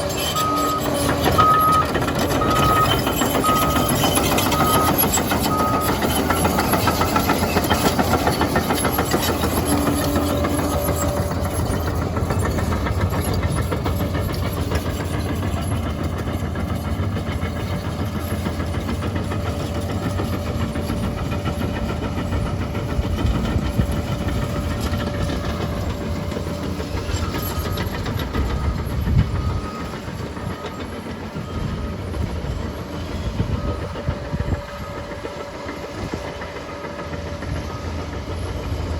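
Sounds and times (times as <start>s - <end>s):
diesel engine under load: 0.0s - 38.9s
steel tracks clattering: 0.0s - 38.9s
short beeps: 0.4s - 6.0s.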